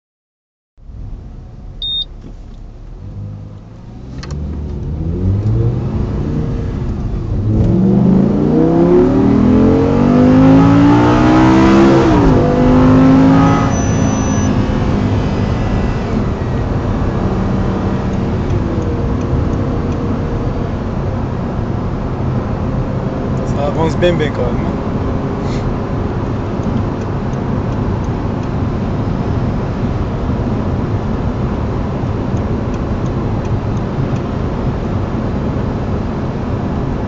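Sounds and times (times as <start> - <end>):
short high beep: 1.8 - 2.1, 13.3 - 14.6
car engine accelerating hard: 2.6 - 37.0.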